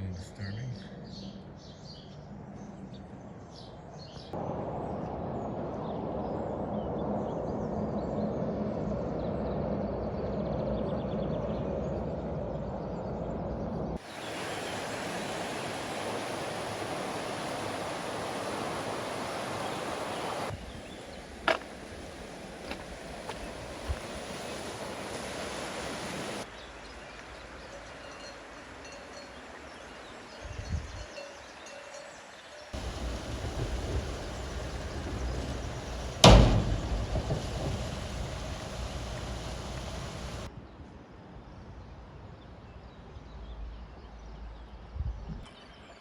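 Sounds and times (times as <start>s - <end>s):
steady outdoor rushing noise: 4.4s - 27.1s, 32.8s - 40.5s.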